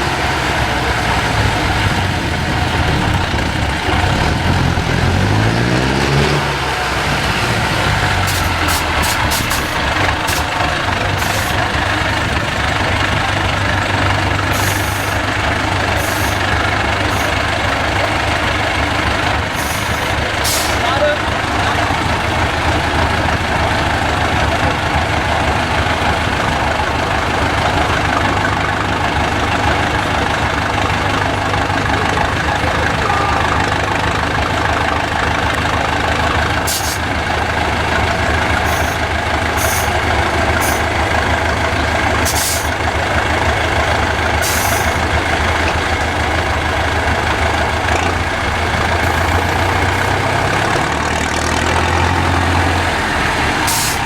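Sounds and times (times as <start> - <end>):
truck diesel engine running: 0.0 - 54.0
air brake hisses: 8.2 - 10.6, 14.5 - 15.2, 19.6 - 20.8, 36.7 - 37.1, 39.6 - 39.9, 42.2 - 42.8, 44.4 - 45.0, 53.7 - 54.0.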